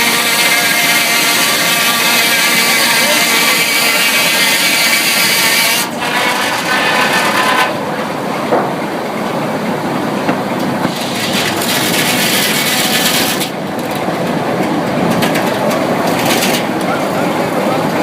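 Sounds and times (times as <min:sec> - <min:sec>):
saw cutting through wood: 0:00.0 - 0:07.9, 0:10.9 - 0:13.6
sawmill machinery din: 0:00.0 - 0:18.0.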